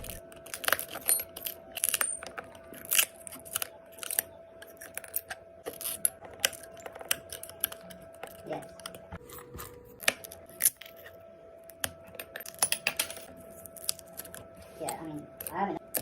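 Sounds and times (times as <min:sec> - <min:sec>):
faint steady hum: 0:00.0 - 0:16.0
glass crunching and clicking: 0:00.0 - 0:16.0.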